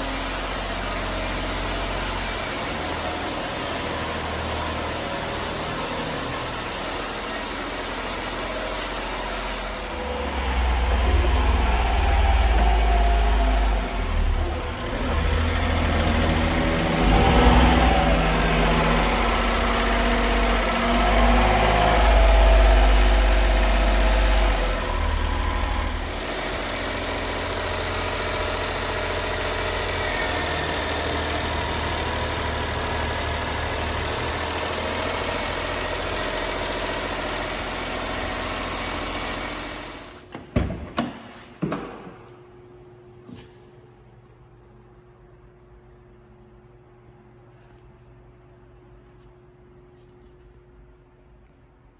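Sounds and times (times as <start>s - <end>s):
small truck engine running: 0.0s - 40.3s.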